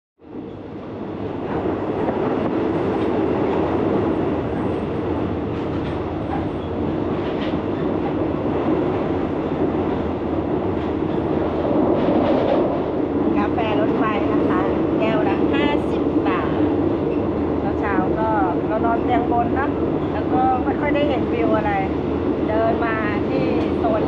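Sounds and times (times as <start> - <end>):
train wheels rolling on rails: 0.3 - 24.0.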